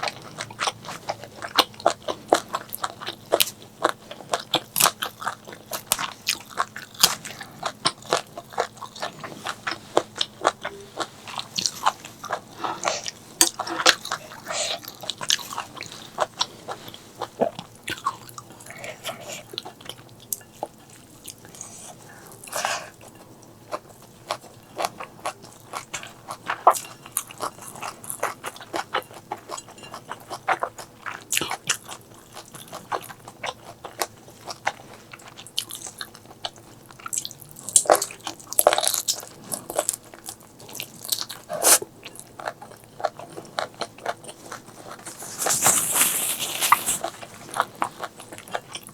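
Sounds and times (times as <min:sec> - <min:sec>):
food crunching: 0:00.0 - 0:48.9
person chewing food: 0:00.0 - 0:48.9.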